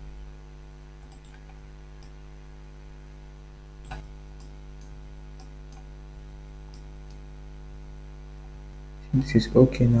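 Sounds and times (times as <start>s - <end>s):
electrical mains hum: 0.0s - 10.0s
computer mouse clicks: 1.0s - 2.2s, 3.8s - 5.9s, 6.7s - 7.2s.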